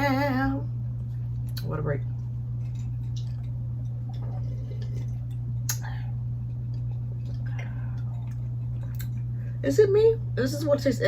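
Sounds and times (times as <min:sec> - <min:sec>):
low hum: 0:00.0 - 0:11.0
wet eating sounds: 0:01.0 - 0:09.6.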